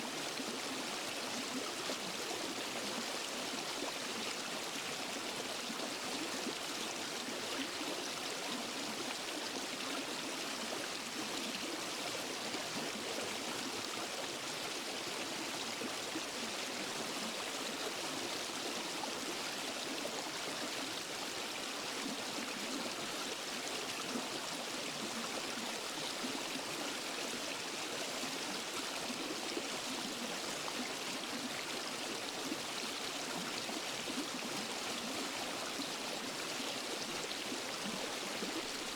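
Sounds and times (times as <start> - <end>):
waterfall and stream over rocks: 0.0 - 38.9.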